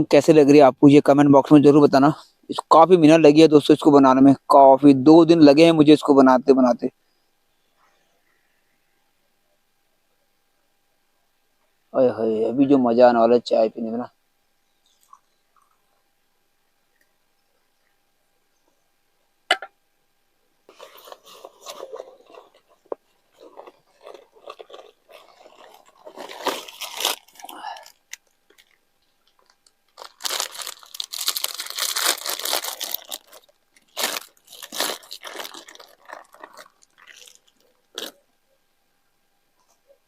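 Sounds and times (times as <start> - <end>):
person chewing crisp food: 20.7 - 38.2.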